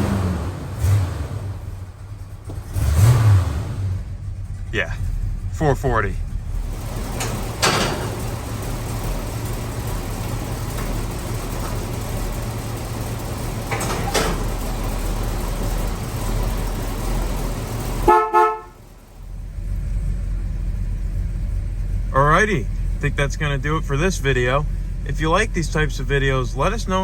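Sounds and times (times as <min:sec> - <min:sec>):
car engine idling: 0:00.0 - 0:27.0
car horn honking: 0:18.0 - 0:18.8.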